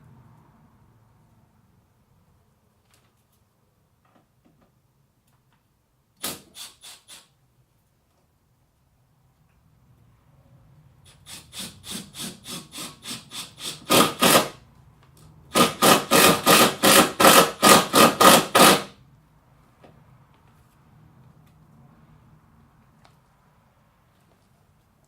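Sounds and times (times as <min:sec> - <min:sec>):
hand saw cutting: 0:11.1 - 0:14.6, 0:15.5 - 0:18.9.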